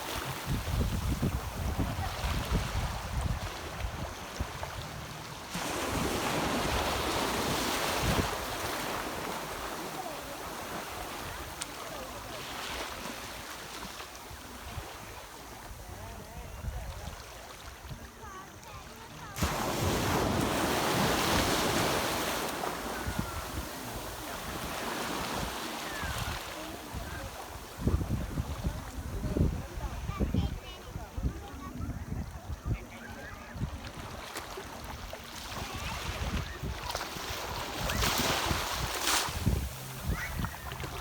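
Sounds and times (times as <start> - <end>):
wind rumbling on microphone: 0.0 - 9.7, 19.4 - 34.2, 34.8 - 41.0
ocean waves rushing in: 0.0 - 15.8, 17.6 - 31.2, 34.2 - 41.0
ocean wave breaking: 19.2 - 27.9.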